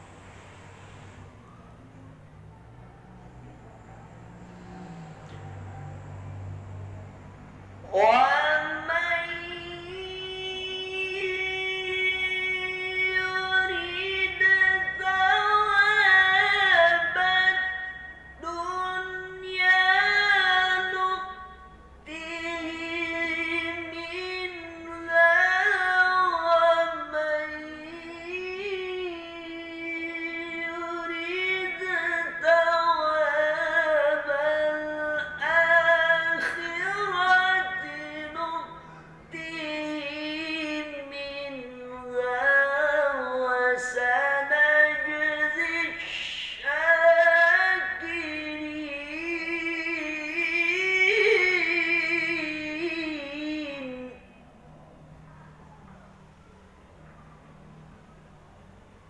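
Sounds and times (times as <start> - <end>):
person reciting melodically: 7.7 - 54.2.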